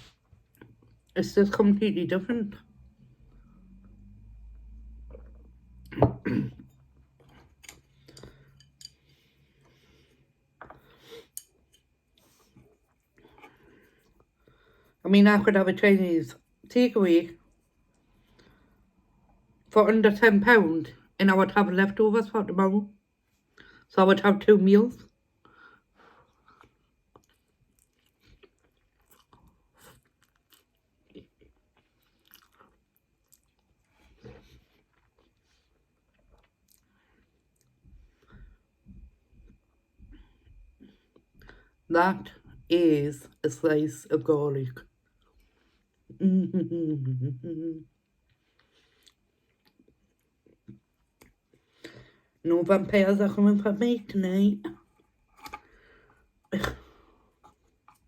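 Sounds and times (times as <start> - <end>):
soft chewing: 6.7 - 15.0, 25.4 - 41.8, 47.8 - 52.4, 54.6 - 58.0
chewing noodles: 26.3 - 37.8.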